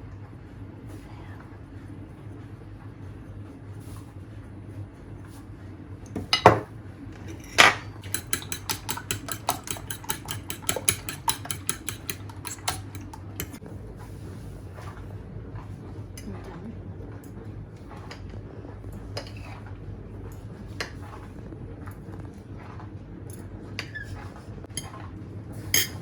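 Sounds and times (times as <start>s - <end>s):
knocks against a dish: 6.2s - 6.7s
utensil clinking against bowl: 6.2s - 13.6s, 25.8s - 26.0s.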